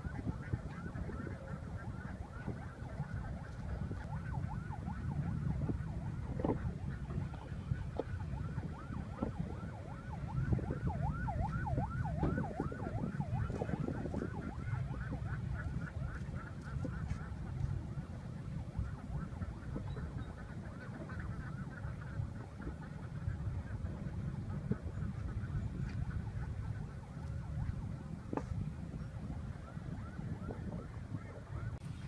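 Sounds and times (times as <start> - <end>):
wind rumble on microphone: 0.0 - 32.0.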